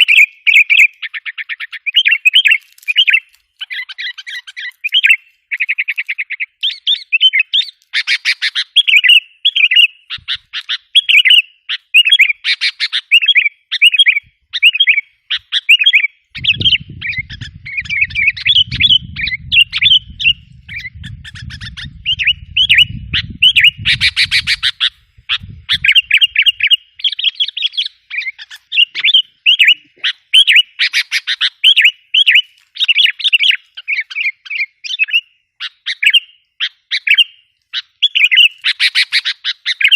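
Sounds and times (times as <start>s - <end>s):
bird chirping calls: 0.0s - 39.9s.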